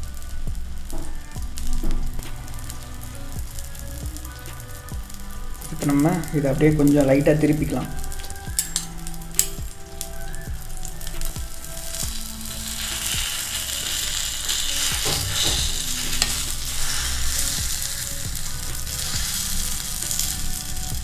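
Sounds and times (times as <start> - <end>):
food sizzling in oil: 0.0 - 21.0
metal utensils clicking on pan: 5.6 - 21.0.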